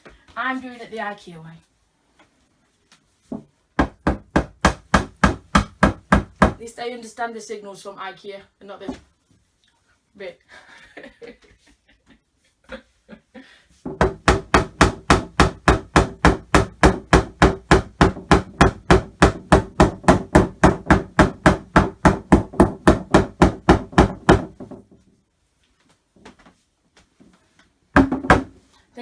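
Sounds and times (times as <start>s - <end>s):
hammer striking wooden dowels: 3.3s - 6.6s, 13.8s - 24.8s, 28.0s - 28.6s.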